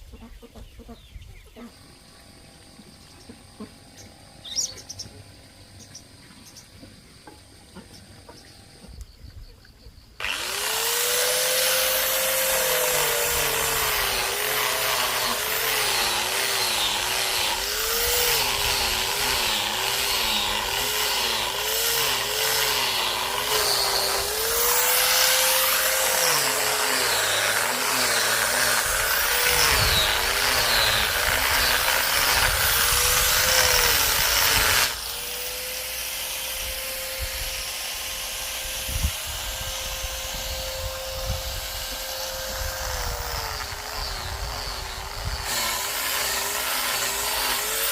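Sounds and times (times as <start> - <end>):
electric power tool cutting: 10.2 - 47.9.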